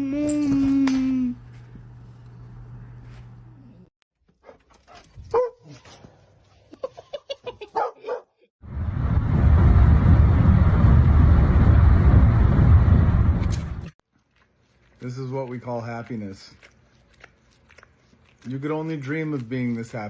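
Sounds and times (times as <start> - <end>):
dog yipping and barking: 4.4 - 5.8, 7.7 - 8.4.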